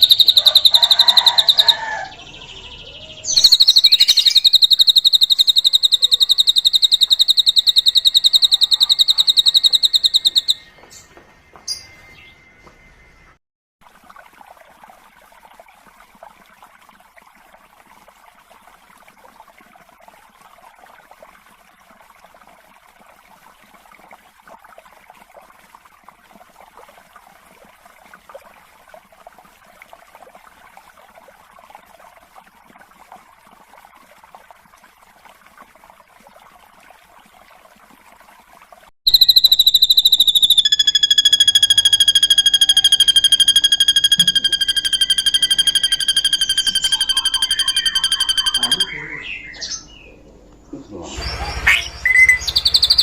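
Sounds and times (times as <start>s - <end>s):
bird chatter: 0.0s - 1.9s, 3.3s - 11.0s, 39.1s - 49.4s
piercing bird whistle: 0.0s - 2.1s, 3.2s - 10.8s, 39.1s - 49.9s, 51.2s - 53.0s.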